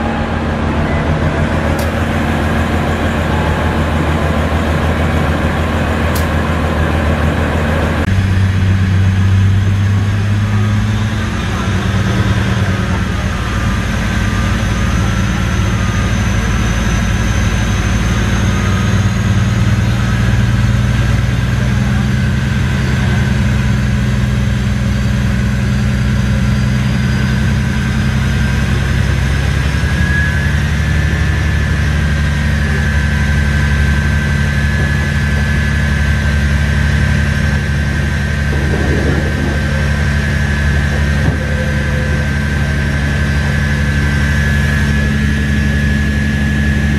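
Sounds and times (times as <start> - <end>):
diesel engine exhaust drone: 0.0 - 46.9
faint high whine: 25.6 - 46.9.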